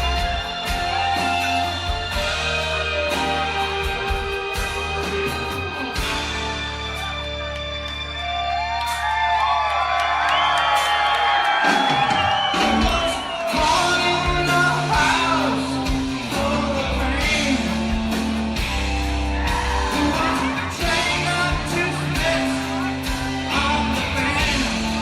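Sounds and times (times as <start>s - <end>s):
person singing: 0.0s - 6.3s, 12.6s - 18.4s, 19.3s - 25.0s
bass guitar: 0.0s - 25.0s
drums: 0.0s - 25.0s.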